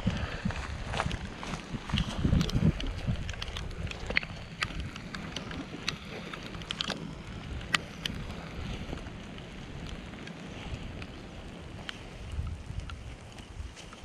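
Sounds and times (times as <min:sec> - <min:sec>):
wind buffeting microphone: 0:00.0 - 0:14.0
sharp ticks: 0:01.9 - 0:11.2.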